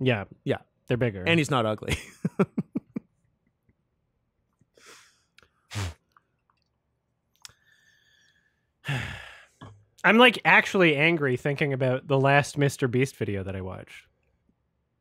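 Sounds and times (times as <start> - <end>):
short breath: 4.8 - 6.0, 7.5 - 9.6.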